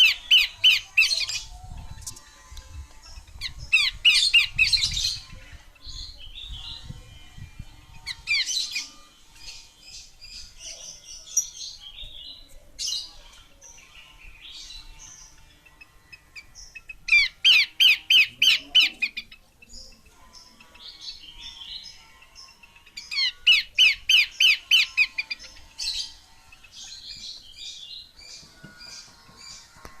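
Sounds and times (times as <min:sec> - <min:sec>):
bird calling rapid arcing notes: 0:15.2 - 0:20.0, 0:20.6 - 0:28.4.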